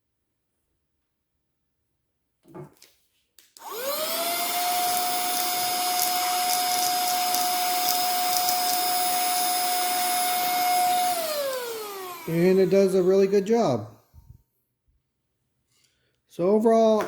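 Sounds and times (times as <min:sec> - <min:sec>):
vacuum cleaner motor whine: 0:03.6 - 0:13.5.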